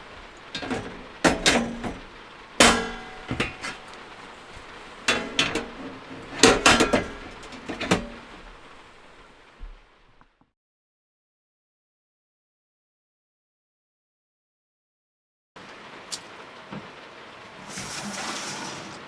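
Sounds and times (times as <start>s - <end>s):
tableware clinking: 0.0s - 9.1s.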